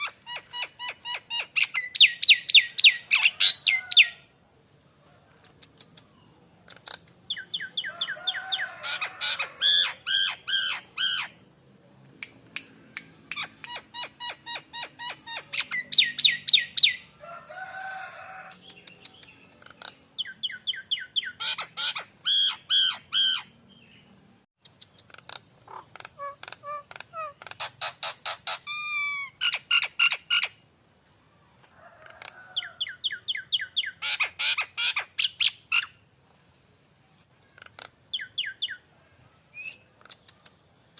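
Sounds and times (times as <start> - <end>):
starling singing: 0.0 - 4.2, 13.3 - 17.1, 18.6 - 24.0, 32.5 - 36.0.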